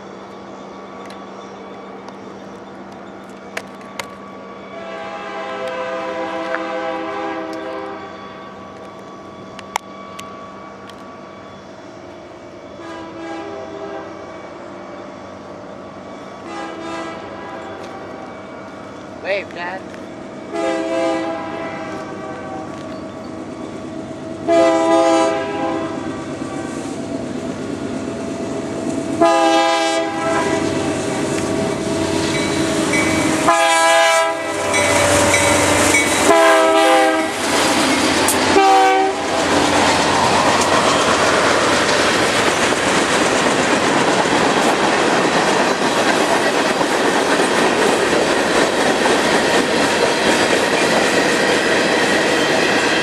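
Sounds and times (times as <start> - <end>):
train wheels on rails: 0.0 - 53.0
locomotive air horn blasts: 4.8 - 8.1, 12.8 - 14.2, 16.4 - 18.1, 20.5 - 22.7, 24.4 - 26.8, 29.2 - 37.5, 38.4 - 39.4.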